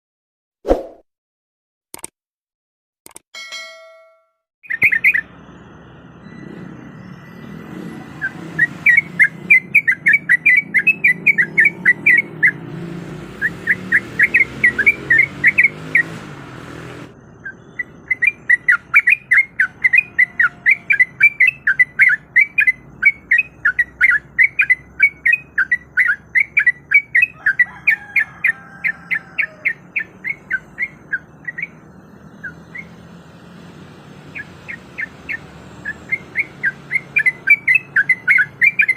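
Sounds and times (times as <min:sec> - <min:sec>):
bulbul singing chattering notes: 0:06.8 - 0:12.7, 0:17.3 - 0:27.7, 0:34.2 - 0:38.9.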